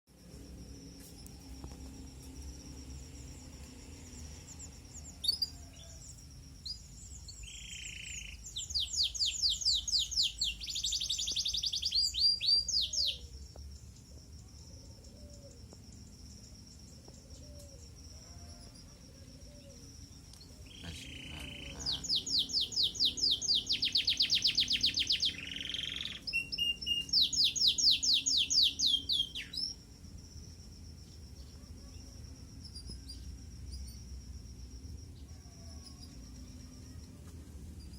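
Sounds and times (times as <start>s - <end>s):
canary singing trills: 3.2s - 13.5s, 19.5s - 29.8s.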